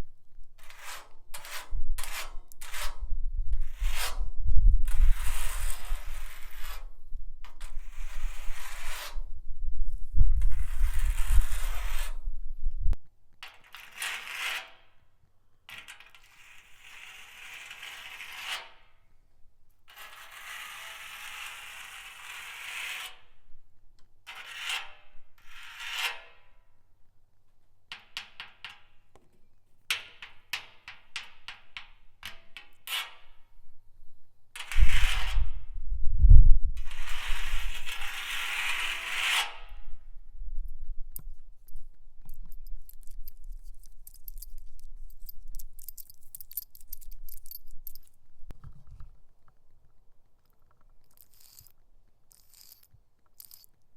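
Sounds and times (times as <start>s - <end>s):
nails scraping metal drum: 0.6s - 4.3s, 4.9s - 9.4s, 10.4s - 12.3s, 29.9s - 33.4s, 34.6s - 35.6s, 36.8s - 40.0s, 41.2s - 48.3s, 51.0s - 53.8s.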